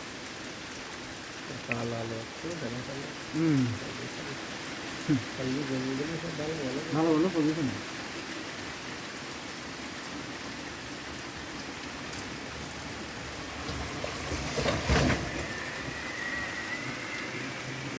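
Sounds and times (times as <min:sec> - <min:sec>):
steady rain hiss: 0:00.0 - 0:18.0
faint high steady tone: 0:15.3 - 0:18.0.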